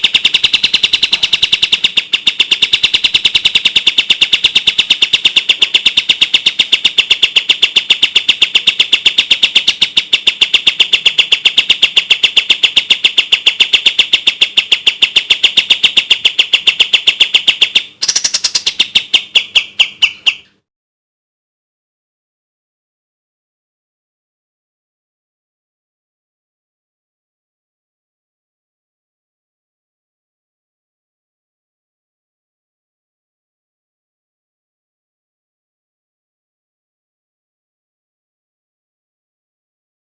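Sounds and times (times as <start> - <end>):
bird song rapid repeated notes: 0.0 - 20.6.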